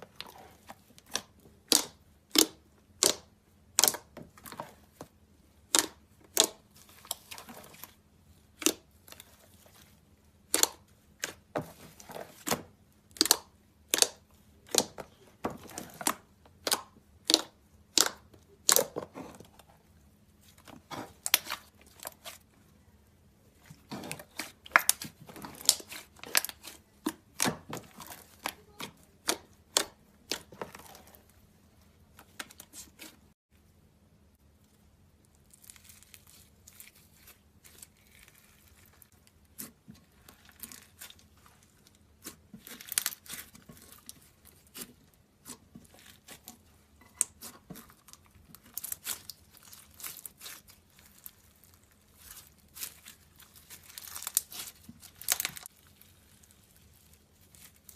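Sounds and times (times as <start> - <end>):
crunchy slime crackling and popping: 23.5 - 31.3, 34.6 - 57.9.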